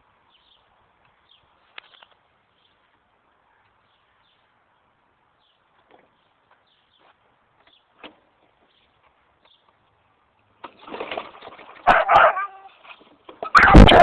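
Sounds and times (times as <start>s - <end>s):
dog barking loudly: 11.8s - 12.7s.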